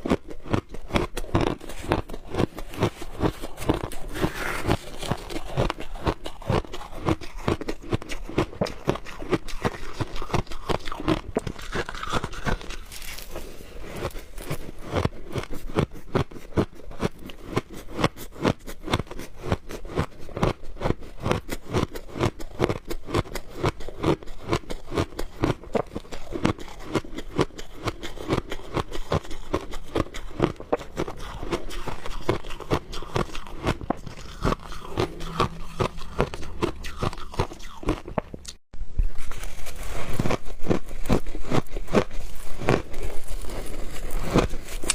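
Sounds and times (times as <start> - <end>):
shaved ice crunching: 1.3 - 15.1, 39.2 - 44.9.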